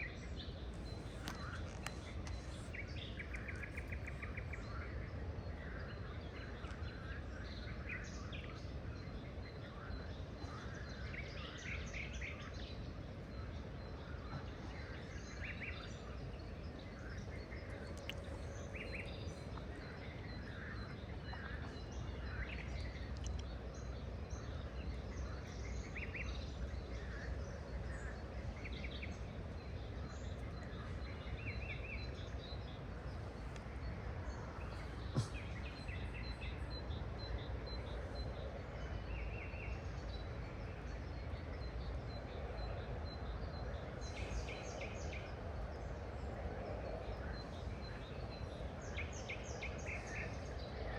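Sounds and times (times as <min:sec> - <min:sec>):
low background noise: 0:00.0 - 0:50.9
birds chirping and calling: 0:34.4 - 0:37.8.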